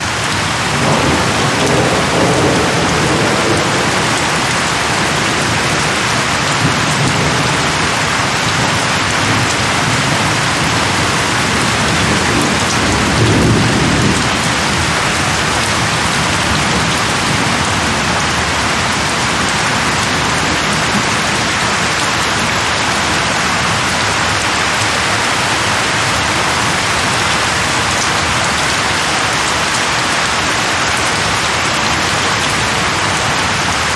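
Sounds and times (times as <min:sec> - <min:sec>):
thunder rumbles: 0:00.0 - 0:21.9, 0:23.6 - 0:28.7
heavy rain: 0:00.0 - 0:33.9.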